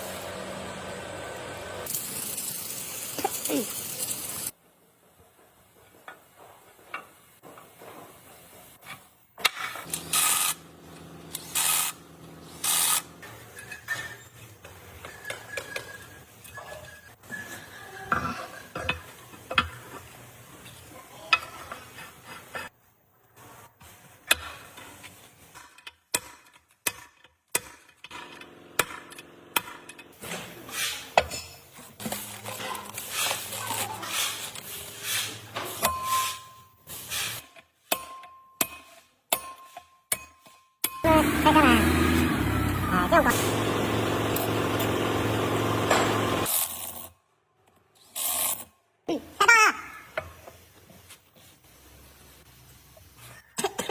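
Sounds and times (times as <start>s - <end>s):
metal tools clinking and scraping: 12.6s - 19.7s, 29.8s - 37.4s.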